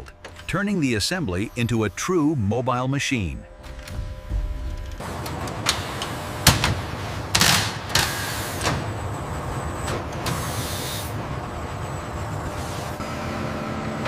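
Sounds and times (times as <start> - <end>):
compressed air hissing: 10.3 - 11.1.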